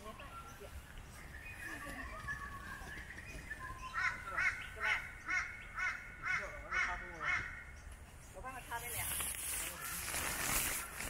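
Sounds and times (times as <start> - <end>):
bird making harsh calls: 3.8 - 7.8.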